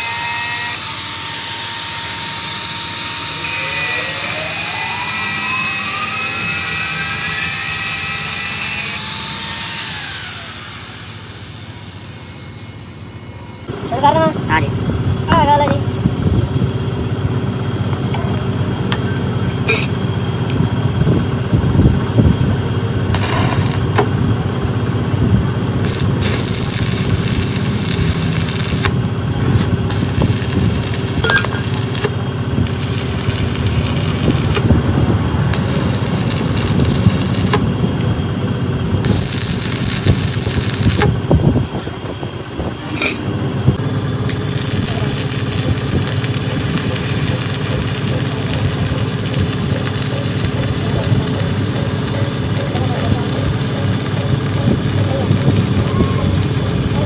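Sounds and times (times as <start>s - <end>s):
machine droning: 0.0s - 57.0s
bursts of hiss: 44.3s - 57.0s.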